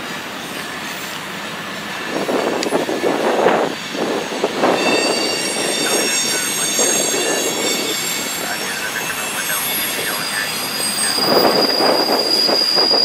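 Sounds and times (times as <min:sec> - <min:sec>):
train cars rumbling: 0:00.0 - 0:13.0
train wheels squealing: 0:00.3 - 0:13.0
wind buffeting microphone: 0:01.9 - 0:08.2, 0:11.1 - 0:13.0.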